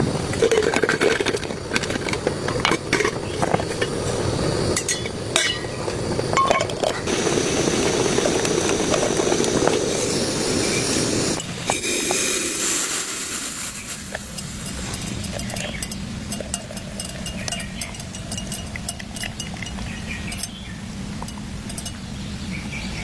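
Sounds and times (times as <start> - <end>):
steady rain: 0.0 - 18.9
light clinks and knocks: 4.8 - 7.1, 14.4 - 22.1.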